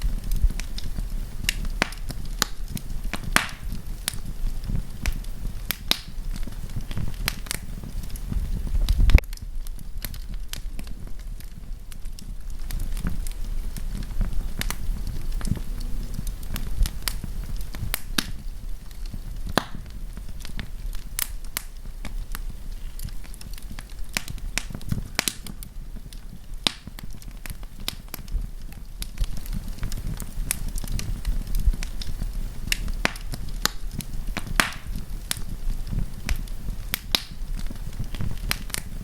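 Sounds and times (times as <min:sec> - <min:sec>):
campfire crackling: 0:00.0 - 0:39.0.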